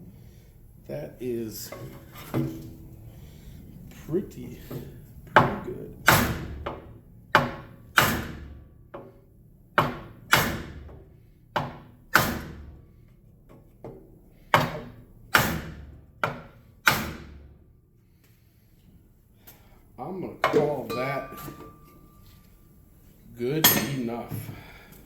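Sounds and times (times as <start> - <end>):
hammer striking metal rim: 20.5 - 22.3, 23.6 - 24.4.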